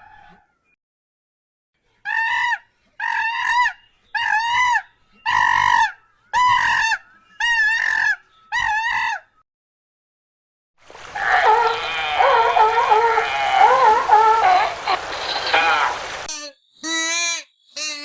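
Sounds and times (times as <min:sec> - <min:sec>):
fowl calling: 0:11.0 - 0:16.3.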